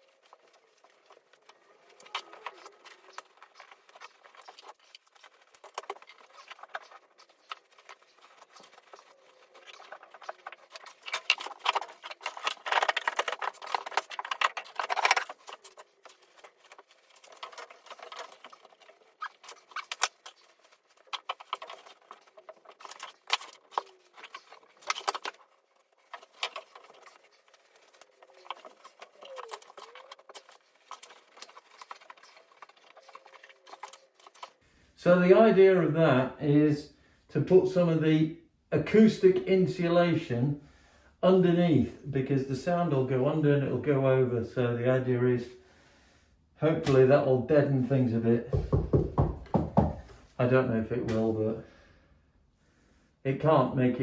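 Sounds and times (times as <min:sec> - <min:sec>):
insulation rustling and scraping: 0:00.0 - 0:34.7.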